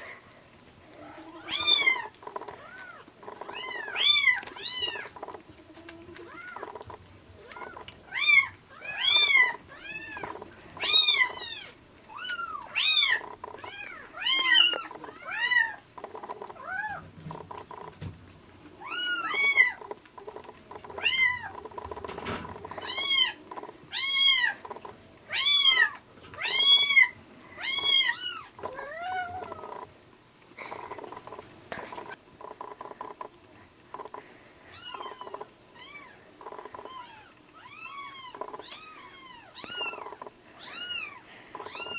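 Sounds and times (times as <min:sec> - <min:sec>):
kittens mewing: 0:01.0 - 0:18.0, 0:18.8 - 0:29.9, 0:30.6 - 0:33.2.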